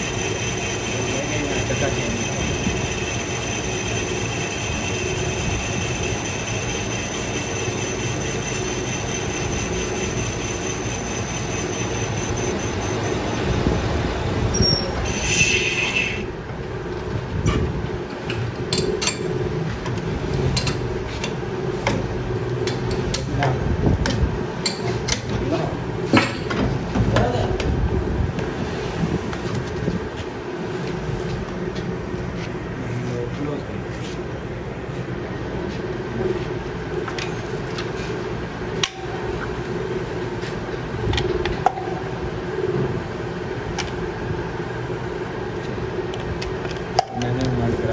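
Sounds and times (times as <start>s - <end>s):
machine humming: 0.0s - 16.9s
low machine hum: 0.0s - 47.9s.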